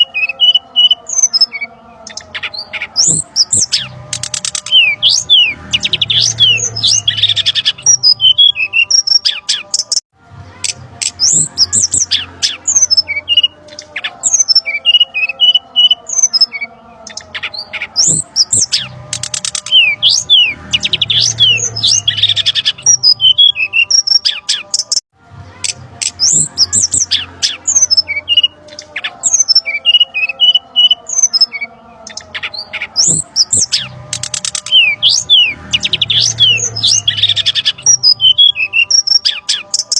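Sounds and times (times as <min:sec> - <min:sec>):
bird whistles and squawks: 0:25.6 - 0:39.9.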